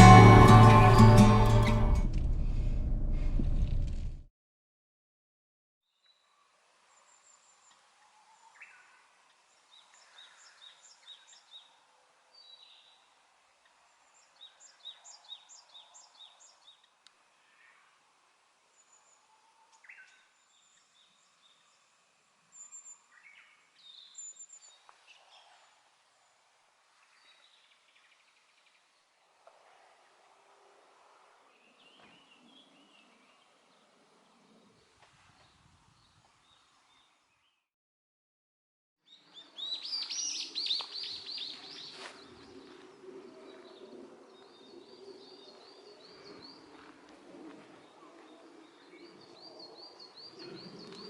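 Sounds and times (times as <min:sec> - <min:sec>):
low steady hiss: 0:05.9 - 0:37.6.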